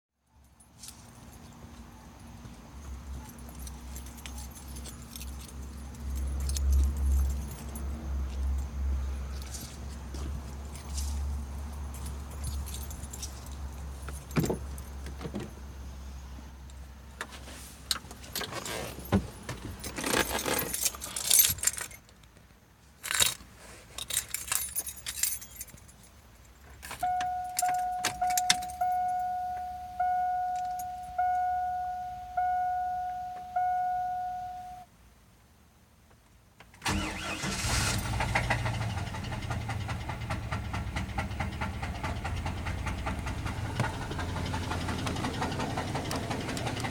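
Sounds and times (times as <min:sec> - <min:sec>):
keys jangling: 0:03.2 - 0:08.7, 0:09.3 - 0:15.0, 0:19.8 - 0:22.1, 0:24.0 - 0:31.5
car engine starting and running: 0:26.9 - 0:34.8, 0:36.7 - 0:46.9
vehicle warning chime: 0:27.0 - 0:34.9.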